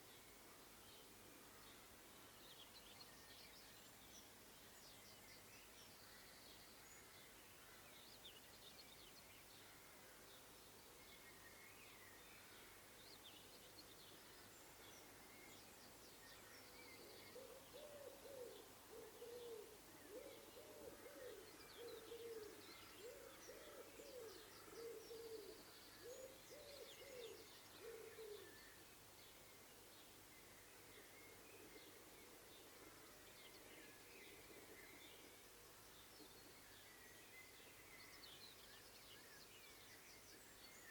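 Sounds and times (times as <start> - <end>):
small birds chirping: 10.4 - 40.9
pigeon cooing: 17.7 - 21.4.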